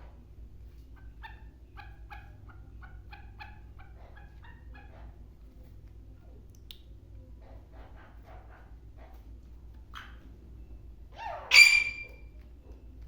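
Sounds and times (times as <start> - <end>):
low steady hum: 0.0 - 13.0
bird calling harsh notes: 11.3 - 12.2.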